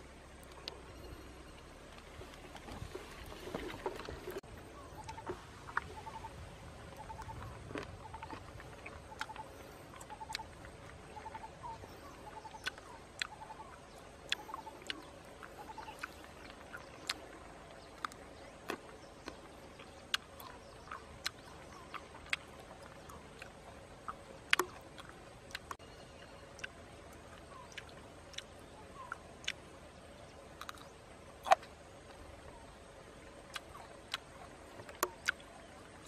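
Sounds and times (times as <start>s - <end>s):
bird chirping: 0.0s - 36.0s
crunchy chewing and biting: 6.9s - 29.6s, 30.5s - 32.3s, 33.4s - 36.0s.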